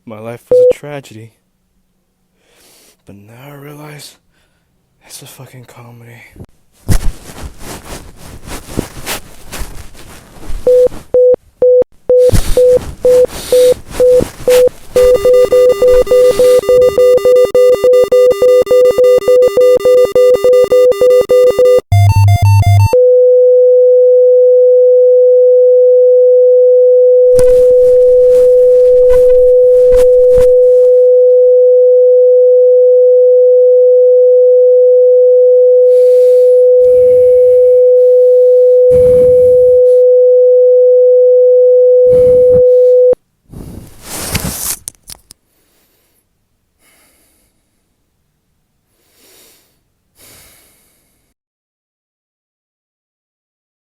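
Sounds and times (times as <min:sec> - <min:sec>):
rustling and thumps of struggle: 0:06.7 - 0:11.3, 0:12.1 - 0:21.2, 0:27.3 - 0:31.4
heart monitor beeping: 0:10.6 - 0:23.0, 0:27.3 - 0:31.4
flatline tone: 0:10.7 - 0:33.1
high-pitched alarm: 0:12.6 - 0:23.0.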